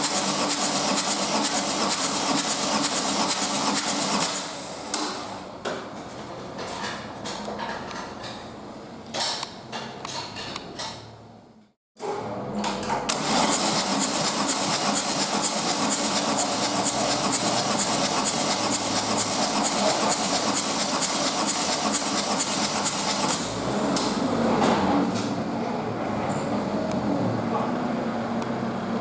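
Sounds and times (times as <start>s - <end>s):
diesel engine starting and running: 12.0s - 29.0s.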